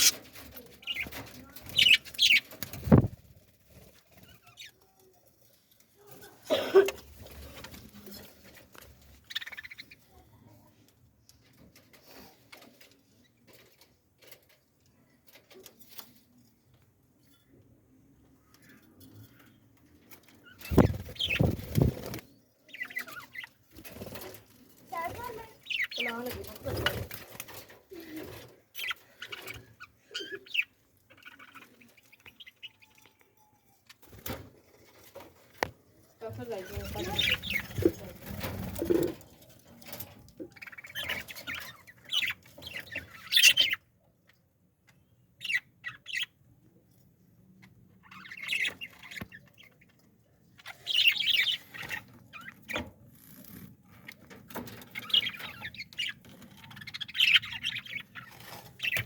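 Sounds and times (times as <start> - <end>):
birds calling: 0.0 - 3.2, 20.2 - 24.4, 36.6 - 39.2, 39.9 - 43.9, 48.0 - 52.8, 54.0 - 59.0
birds chirping: 0.0 - 5.2, 6.5 - 10.5, 17.2 - 35.5, 36.2 - 59.0
light pattering and scratching: 18.4 - 32.5, 33.9 - 43.8, 47.6 - 59.0.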